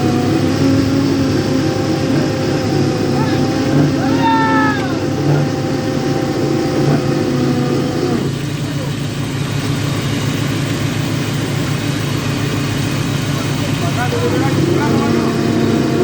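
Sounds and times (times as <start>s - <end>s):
held higher tone: 0.0s - 9.8s
boat engine running: 0.0s - 16.0s.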